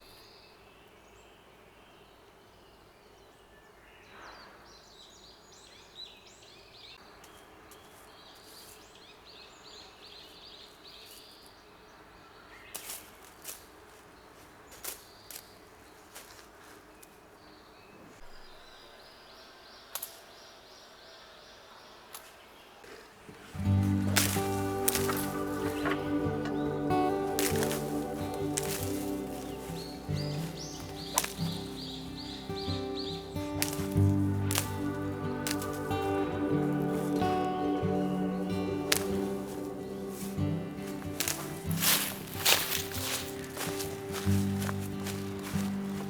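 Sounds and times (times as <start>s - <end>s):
birds singing faintly: 0.0s - 46.0s
steady low hiss: 23.1s - 46.0s.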